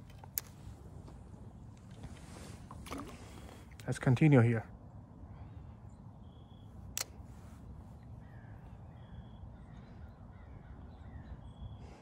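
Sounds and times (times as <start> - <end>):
faint bird calls: 5.2 - 12.0.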